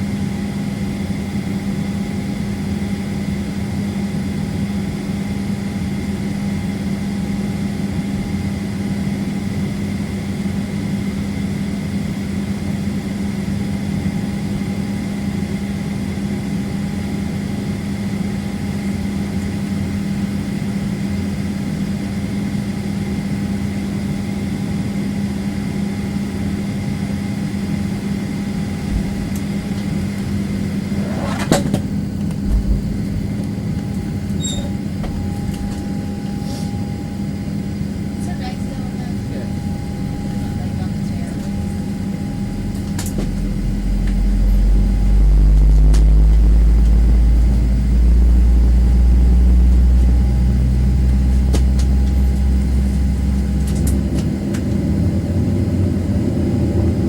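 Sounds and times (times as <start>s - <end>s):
jet engine hum in cabin: 0.0s - 57.0s
faint whining tones: 39.4s - 55.2s.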